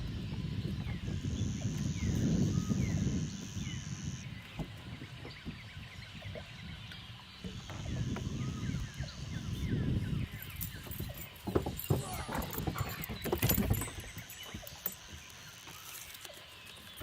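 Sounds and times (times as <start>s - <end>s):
birds chirping: 0.0s - 17.0s
high-pitched buzz: 1.1s - 4.3s.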